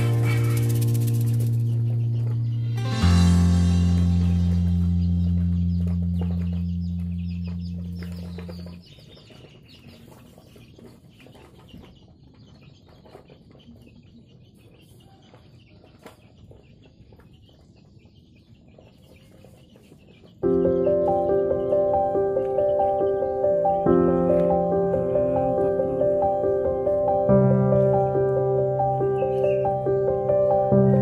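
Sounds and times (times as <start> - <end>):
low held musical chord: 0.0 - 8.8, 20.4 - 31.0
faint birds chirping: 0.0 - 31.0.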